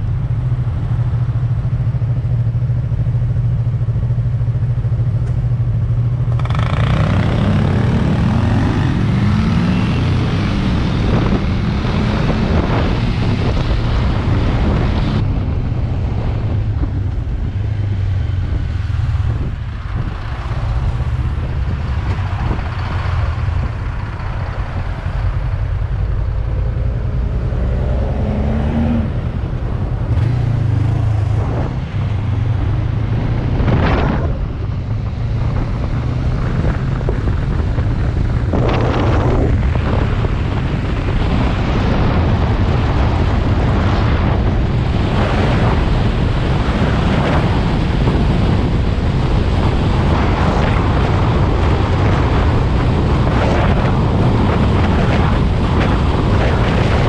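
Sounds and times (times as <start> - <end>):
motorcycle engine running: 0.0 - 17.4
wind rushing over microphone: 3.2 - 57.0.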